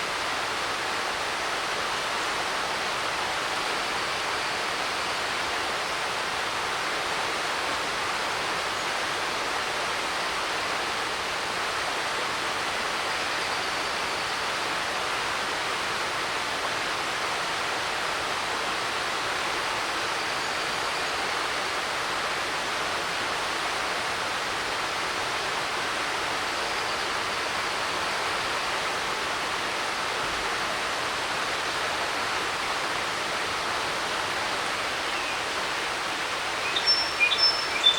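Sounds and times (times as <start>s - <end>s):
creek rushing over rocks: 14.4s - 37.9s.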